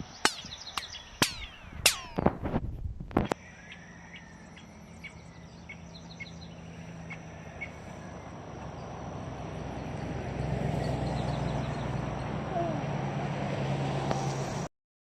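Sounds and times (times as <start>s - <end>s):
insects droning: 3.2s - 12.0s.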